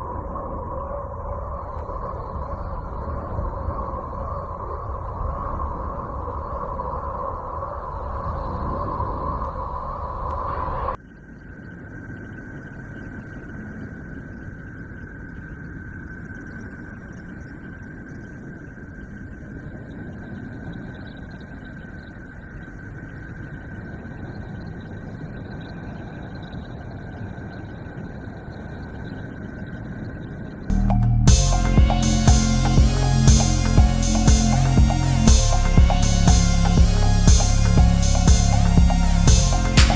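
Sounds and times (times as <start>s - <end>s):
low rumbling hiss: 30.7s - 39.9s
thin high tone: 30.7s - 39.9s.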